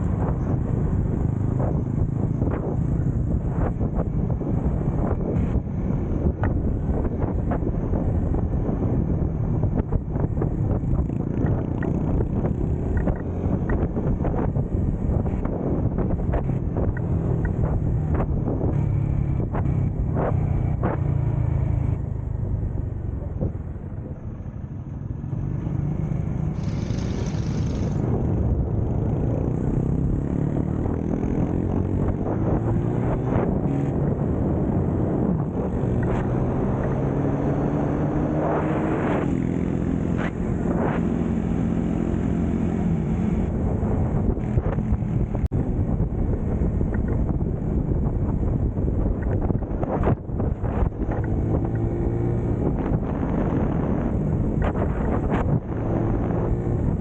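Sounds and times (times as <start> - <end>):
small motorcycle engine running: 26.4 - 28.0.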